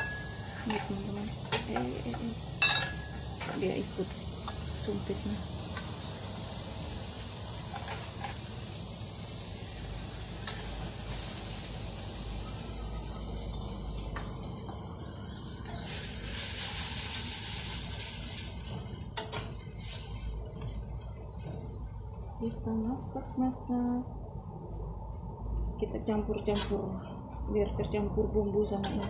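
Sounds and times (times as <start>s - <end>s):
vegetables sizzling in hot oil: 0.0s - 21.6s.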